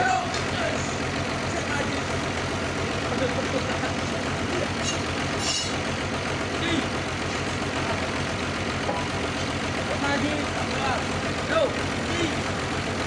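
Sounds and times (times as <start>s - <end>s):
sawmill machinery drone: 0.0s - 13.0s.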